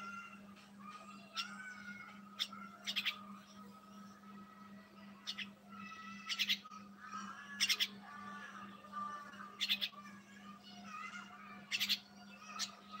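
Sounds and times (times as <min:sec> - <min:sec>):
caged birds chirping: 0:00.1 - 0:13.0.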